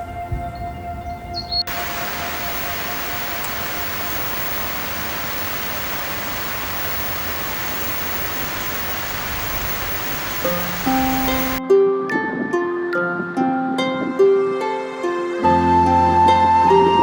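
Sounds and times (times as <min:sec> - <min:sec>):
steady rushing noise: 0:01.7 - 0:11.6.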